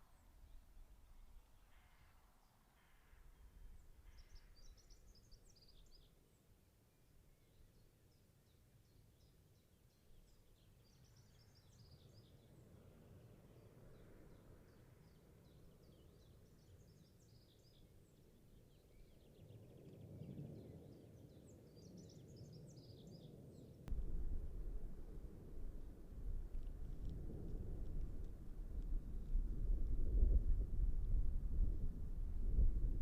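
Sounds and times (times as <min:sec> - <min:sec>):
faint birds chirping: 0:00.0 - 0:23.9
low background rumble: 0:23.9 - 0:33.0.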